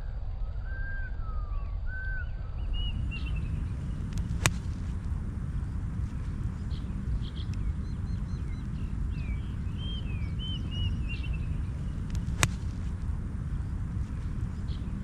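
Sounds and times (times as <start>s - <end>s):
steady low rumble: 2.4s - 15.0s
small birds chirping: 2.6s - 15.0s
golf club striking ball: 3.0s - 15.0s.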